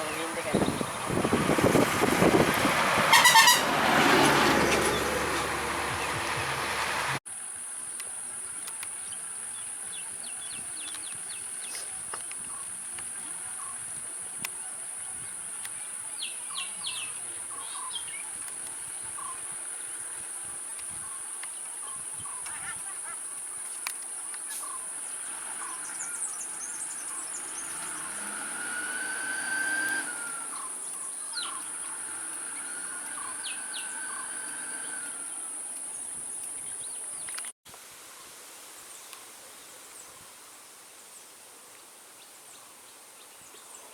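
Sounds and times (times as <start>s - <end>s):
bird chirps and calls: 29.8s - 35.5s.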